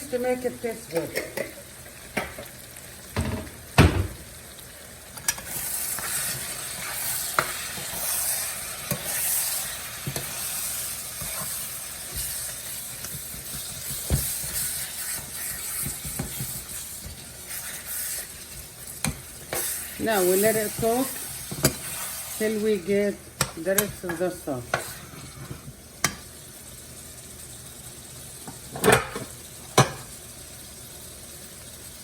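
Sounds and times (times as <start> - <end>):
meat sizzling in oil: 0.0 - 32.0.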